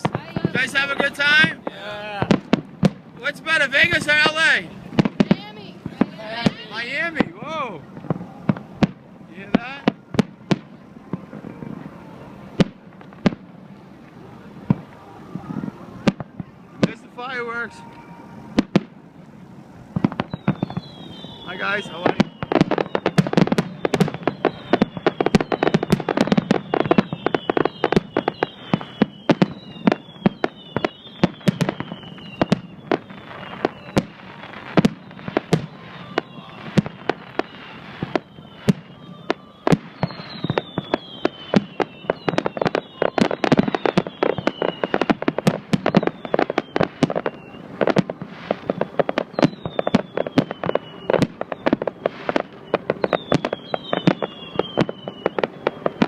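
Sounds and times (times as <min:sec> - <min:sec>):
fireworks bangs and crackles: 0:00.0 - 0:56.0
high falling whistles: 0:15.0 - 0:18.6, 0:20.2 - 0:47.8, 0:48.4 - 0:56.0.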